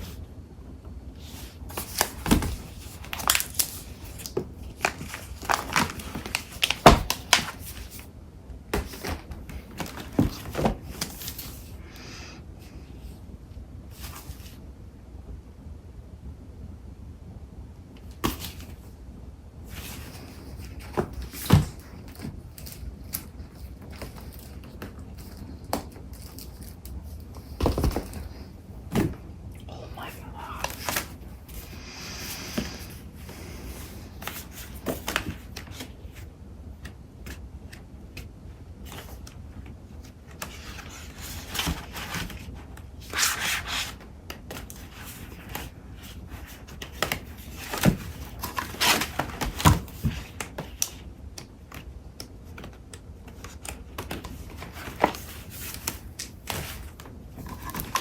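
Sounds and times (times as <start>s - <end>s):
paper sheets rustling: 1.2s - 8.1s, 40.3s - 51.0s.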